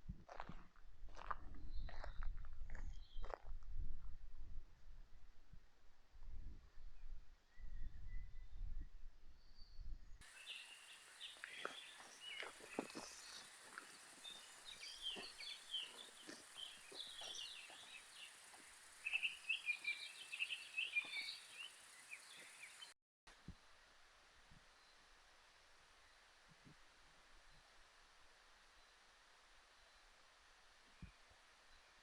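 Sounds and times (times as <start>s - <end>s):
birds chirping: 10.2s - 23.0s
steady high-pitched hiss: 10.2s - 32.0s.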